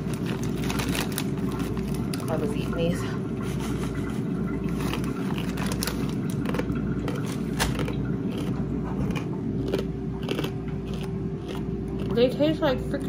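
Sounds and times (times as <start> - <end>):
low background hum: 0.0 - 13.0
hard crunchy snack chewing: 4.8 - 12.4.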